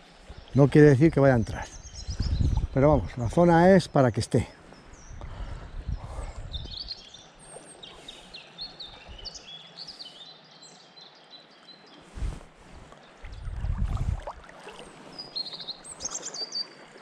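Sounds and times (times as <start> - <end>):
small birds chirping: 0.2 - 12.2, 15.1 - 16.8
river water hissing: 7.0 - 10.8.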